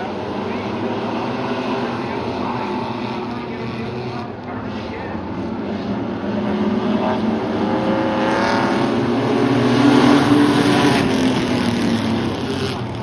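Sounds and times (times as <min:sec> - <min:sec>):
race truck engines passing: 0:00.0 - 0:13.0.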